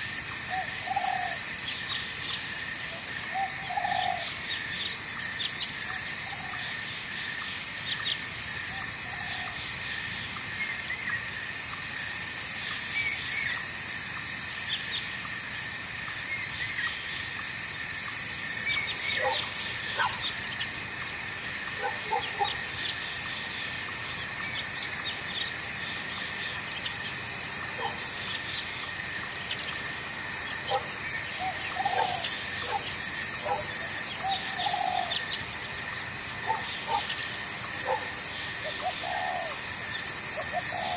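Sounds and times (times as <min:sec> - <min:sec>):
frogs calling: 0:00.0 - 0:40.9
insects trilling: 0:00.0 - 0:40.9
birds calling: 0:18.7 - 0:20.8, 0:30.7 - 0:35.4.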